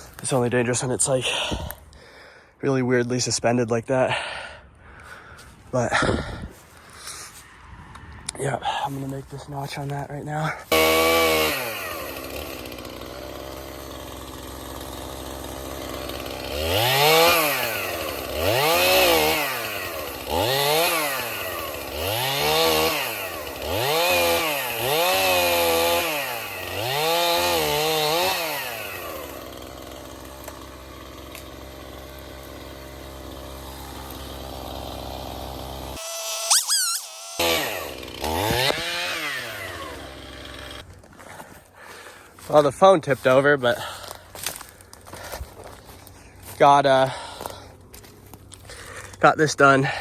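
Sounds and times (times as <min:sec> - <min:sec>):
chainsaw idling and revving: 0:08.6 - 0:50.0.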